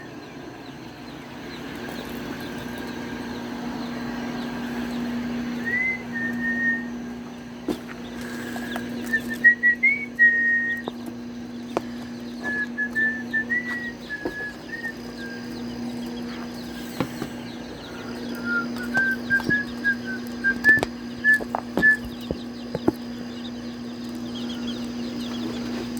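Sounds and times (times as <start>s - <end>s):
steady low hum: 0.0s - 25.9s
person whistling a tune: 5.6s - 6.9s, 9.1s - 10.8s, 18.3s - 22.1s
faint high chirps: 8.0s - 25.9s.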